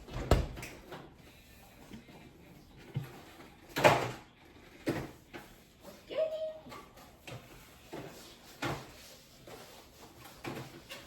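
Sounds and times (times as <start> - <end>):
kitchen handling knocks and thuds: 0.0 - 0.9.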